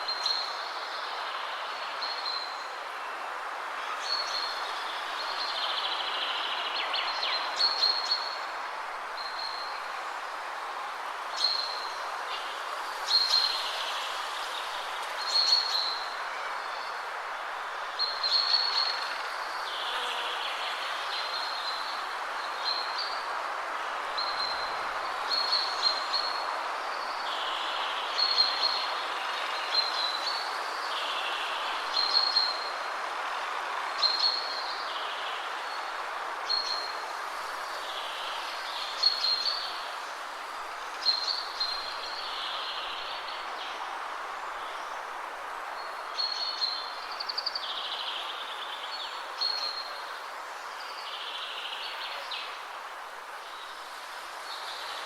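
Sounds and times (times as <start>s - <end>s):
wind through trees: 0.0s - 55.0s
songbirds singing: 24.0s - 55.0s.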